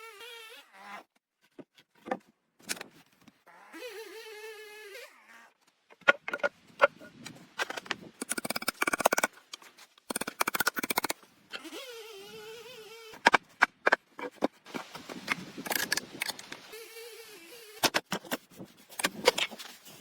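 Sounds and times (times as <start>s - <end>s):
insect buzzing: 11.6s - 13.4s, 15.8s - 17.8s
sharp clicks and crackles: 15.2s - 16.6s.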